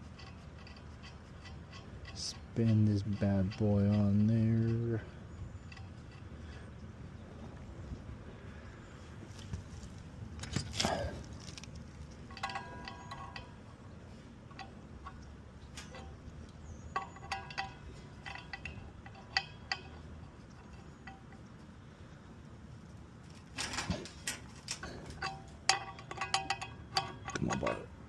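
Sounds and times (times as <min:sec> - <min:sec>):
metal scrape: 0:00.0 - 0:07.3, 0:10.4 - 0:21.9, 0:23.3 - 0:27.9
metal tools clinking: 0:10.4 - 0:13.9, 0:14.5 - 0:21.6, 0:23.3 - 0:28.0.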